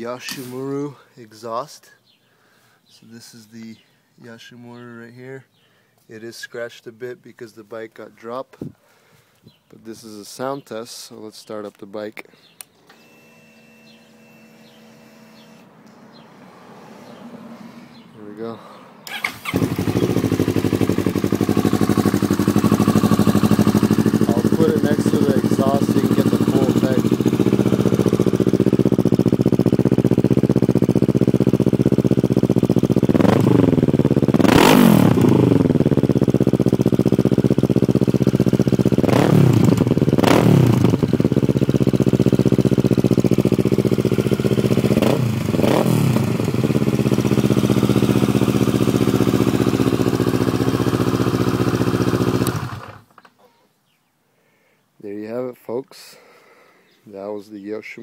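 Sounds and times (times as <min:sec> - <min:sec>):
motorcycle engine idling and revving: 0:19.1 - 0:53.2.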